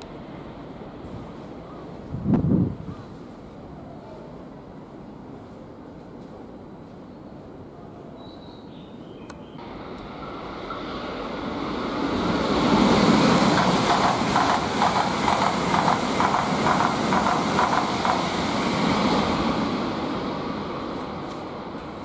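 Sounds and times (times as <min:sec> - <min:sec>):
train rushing past: 0:09.6 - 0:22.0
wheels clicking over rail joints: 0:13.3 - 0:18.4.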